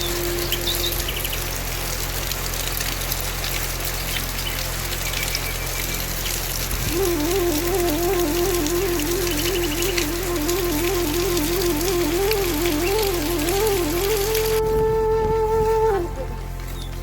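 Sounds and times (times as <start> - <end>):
wavering flute-like melody: 0.0 - 2.1, 6.7 - 17.0
steady rain falling: 0.0 - 17.0.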